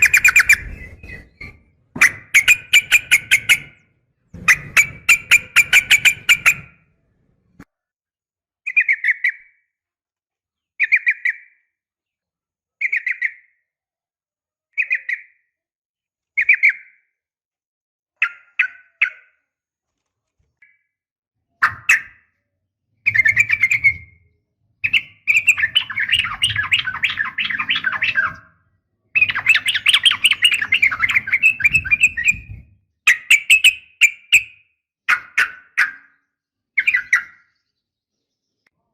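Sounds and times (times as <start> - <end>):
bulbul calling: 0.0 - 3.8, 4.4 - 6.8, 23.0 - 24.2, 24.8 - 36.1, 36.8 - 37.5.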